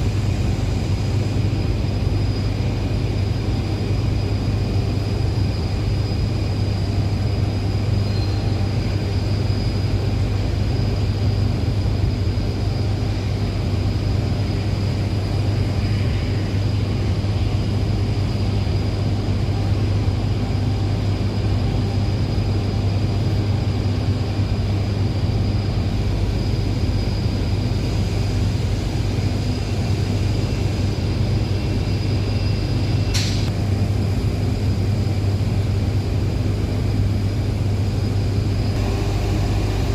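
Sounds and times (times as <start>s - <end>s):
heavy machinery hum: 0.0s - 39.9s
thin high whine: 0.0s - 39.9s
sharp click: 33.1s - 33.6s.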